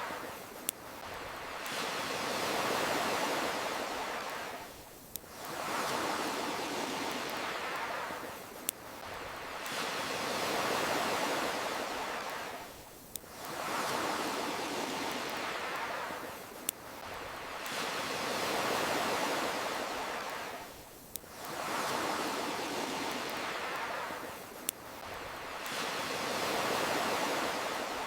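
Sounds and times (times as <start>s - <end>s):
ocean waves washing in: 0.0s - 28.0s.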